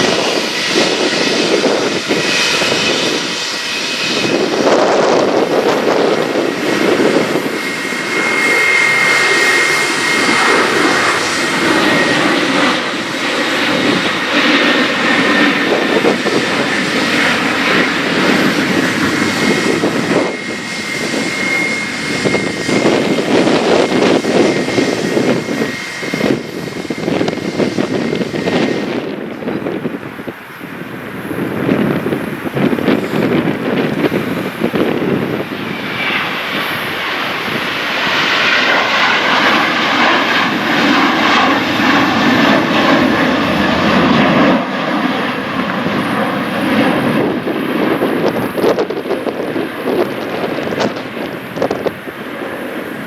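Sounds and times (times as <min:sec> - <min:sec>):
jet airliner passing: 0:00.0 - 0:53.0.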